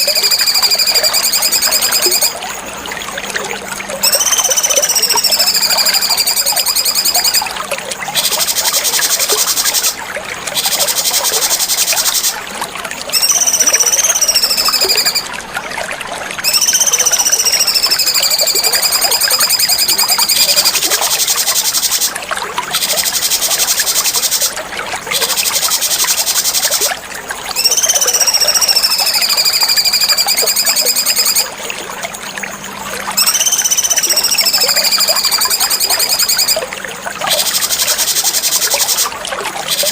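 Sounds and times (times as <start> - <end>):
songbird whistling and trilling: 0.0 - 2.4, 3.9 - 7.5, 8.1 - 10.0, 13.1 - 15.3, 16.4 - 22.1, 27.5 - 31.5, 33.1 - 36.6, 37.3 - 39.9.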